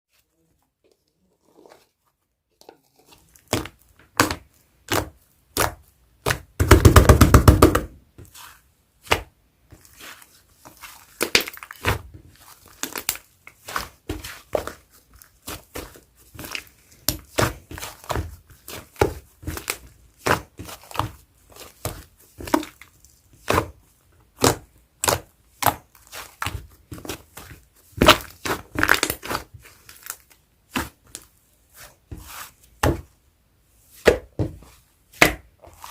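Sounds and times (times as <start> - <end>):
slime crackling: 8.2 - 33.0.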